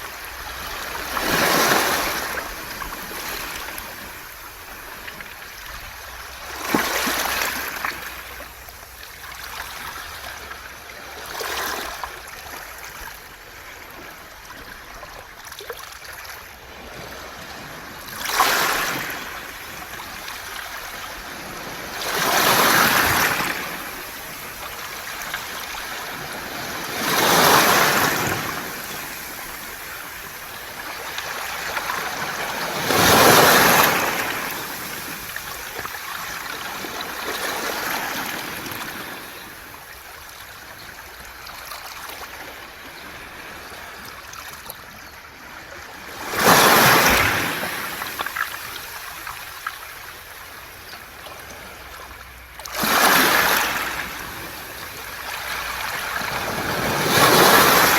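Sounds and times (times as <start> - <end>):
waves breaking on pebbles: 0.0 - 8.4, 17.9 - 40.0, 46.0 - 50.6, 52.6 - 57.9
water rushing over stones: 21.9 - 38.9, 52.6 - 57.9.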